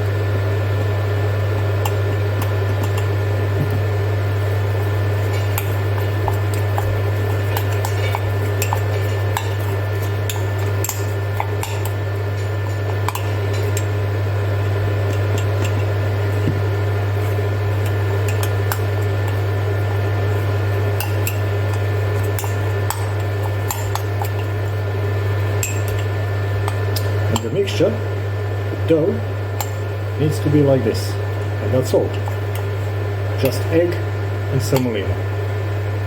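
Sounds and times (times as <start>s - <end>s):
steady low hum: 0.0s - 36.0s
spoon scraping and clinking bowl: 5.2s - 13.9s, 17.2s - 19.5s, 20.9s - 24.7s.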